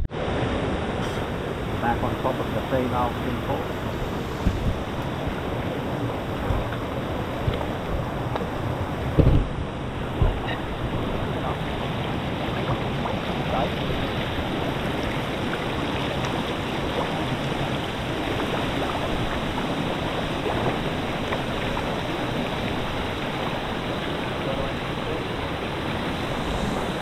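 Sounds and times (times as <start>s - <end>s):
waterfall rushing: 0.1s - 27.0s.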